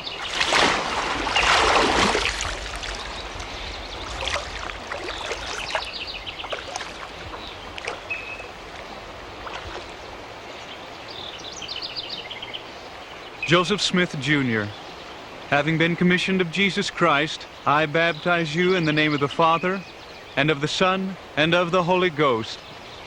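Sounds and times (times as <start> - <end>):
water dripping: 0.0 - 10.2
water splashing: 0.0 - 10.9.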